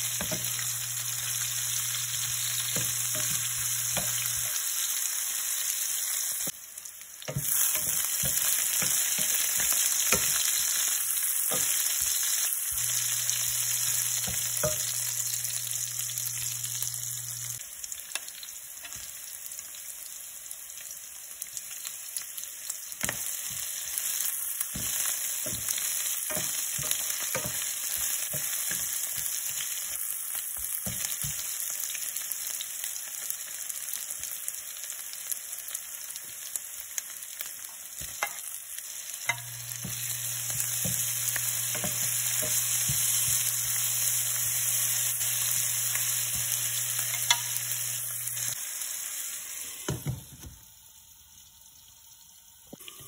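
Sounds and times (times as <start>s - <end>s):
onions sizzling in a pan: 0.0s - 53.0s
wooden spatula tapping: 7.3s - 10.6s.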